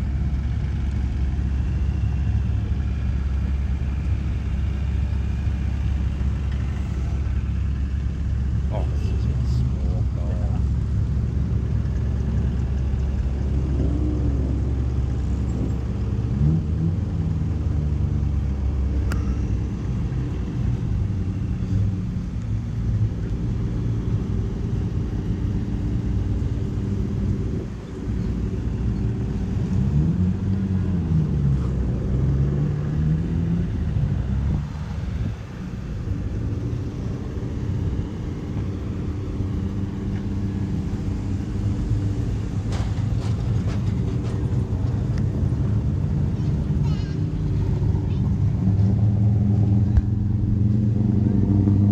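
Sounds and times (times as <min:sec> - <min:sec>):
vehicle engines revving: 0:00.0 - 0:51.9.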